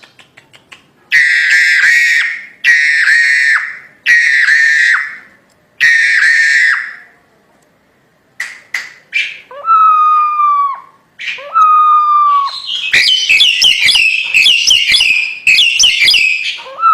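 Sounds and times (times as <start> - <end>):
myna bird calling and whistling: 9.1 - 16.9.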